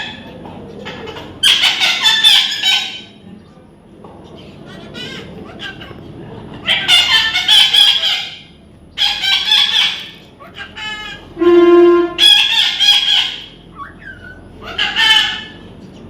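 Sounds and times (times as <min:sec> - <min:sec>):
parrot squawking: 0:00.0 - 0:03.2, 0:04.4 - 0:15.7.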